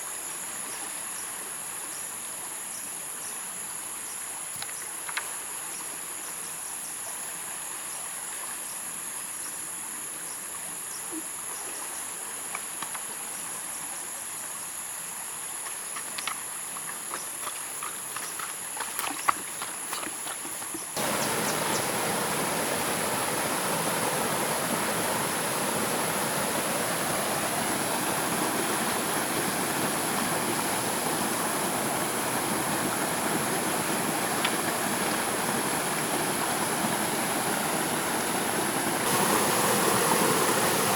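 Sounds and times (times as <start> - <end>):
insect chirring: 16.0 - 37.8
stream rushing: 17.5 - 40.9.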